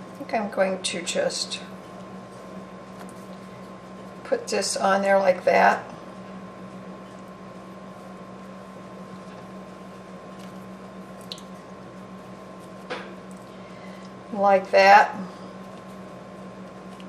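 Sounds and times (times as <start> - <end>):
electrical hum: 0.0 - 17.0
moist food squishing: 6.2 - 14.3, 15.4 - 17.0.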